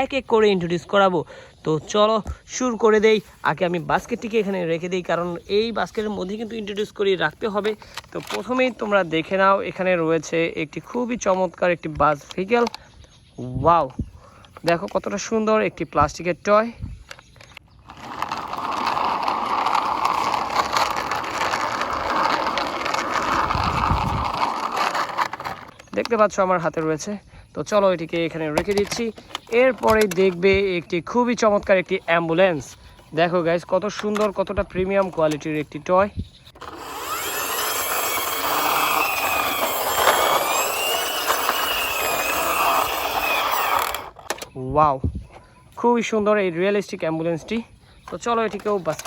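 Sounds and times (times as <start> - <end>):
toy bus wheels whirring rattle: 2.8 - 11.6, 17.0 - 44.6, 47.3 - 49.0.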